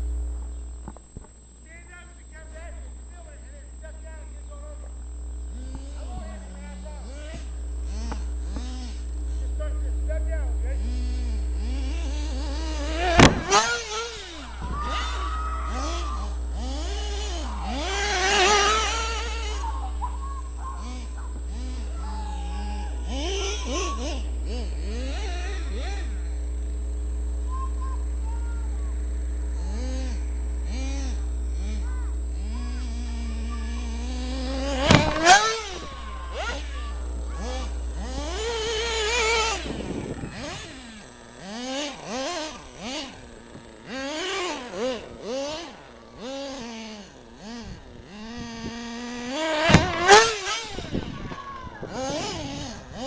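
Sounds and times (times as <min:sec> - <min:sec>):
rc car motor revving: 0:00.0 - 0:53.0
rc car landing knocks: 0:11.7 - 0:19.8, 0:32.7 - 0:47.1, 0:48.7 - 0:53.0.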